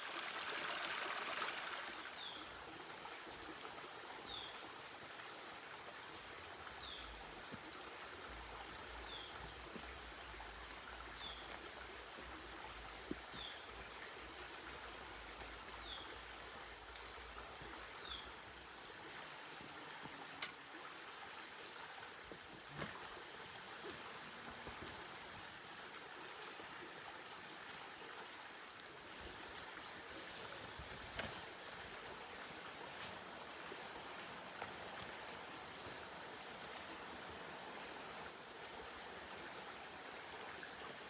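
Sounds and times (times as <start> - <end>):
rushing hiss of water: 0.0 - 2.4.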